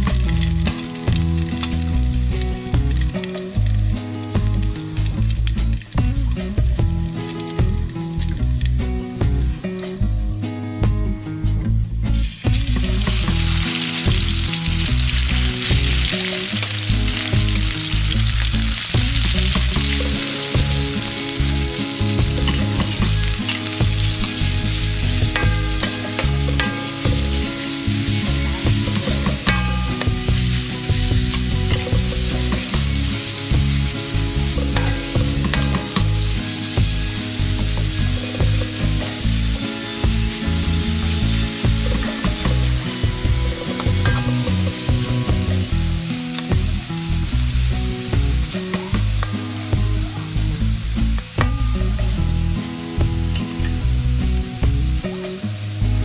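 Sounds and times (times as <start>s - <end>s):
meat sizzling in hot oil: 0.0s - 10.0s, 12.1s - 56.0s
metal spatula scraping wok: 19.9s - 33.5s, 34.6s - 36.8s, 40.9s - 45.5s.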